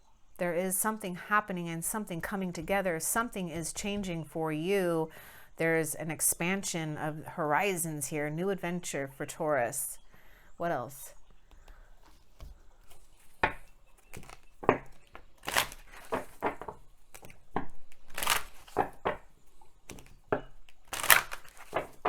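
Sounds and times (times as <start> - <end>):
cards snapping and rustling: 14.0 - 19.2, 19.9 - 22.0.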